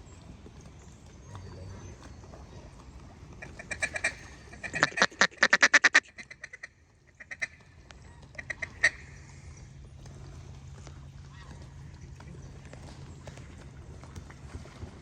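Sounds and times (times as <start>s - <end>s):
duck call quacks: 3.4s - 7.6s, 8.4s - 9.0s.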